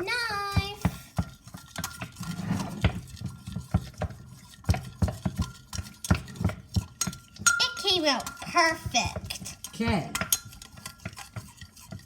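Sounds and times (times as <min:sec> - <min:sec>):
knife scraping bowl: 0:00.0 - 0:12.0
knife clinking against bowl: 0:04.8 - 0:12.0.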